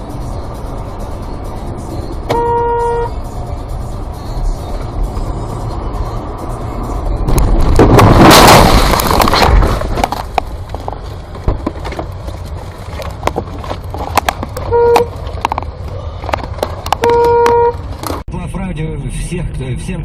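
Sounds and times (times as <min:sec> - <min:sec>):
car horn honk: 0:02.3 - 0:03.2, 0:14.6 - 0:15.1, 0:17.0 - 0:17.8
car crash impact: 0:07.3 - 0:10.4.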